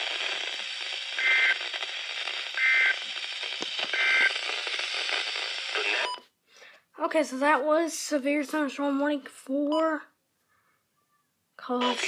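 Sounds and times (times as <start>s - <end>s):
radio static hiss: 0.0s - 6.2s
two-tone digital bursts: 1.2s - 1.6s, 2.6s - 3.0s, 3.9s - 4.4s, 11.8s - 12.0s.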